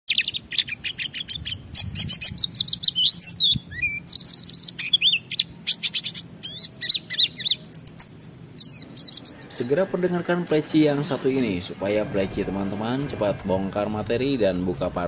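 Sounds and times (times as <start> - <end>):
bird singing fast chirps: 0.1 - 15.0.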